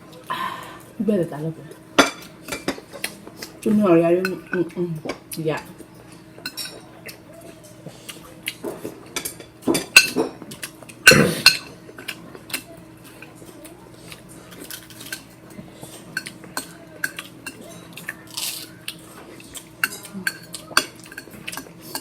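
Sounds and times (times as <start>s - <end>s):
cutlery clinking against dishes: 2.0s - 3.6s, 6.0s - 22.0s.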